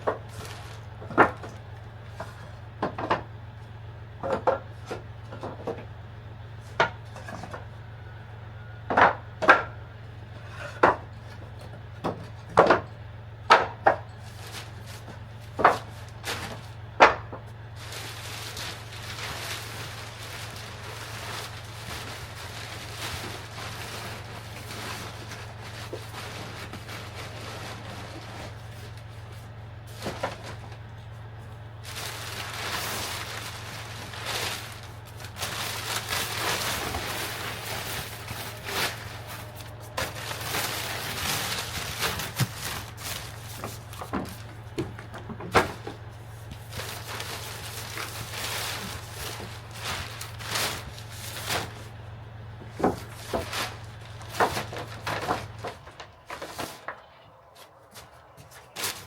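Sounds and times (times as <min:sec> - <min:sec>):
steady low hum: 0:00.0 - 0:59.0
knocks and clicks of wood and tools: 0:02.2 - 0:03.3, 0:04.2 - 0:05.9, 0:08.9 - 0:09.8, 0:10.7 - 0:12.9
rustling or scraping: 0:14.2 - 0:16.8, 0:17.5 - 0:52.0, 0:52.6 - 0:59.0.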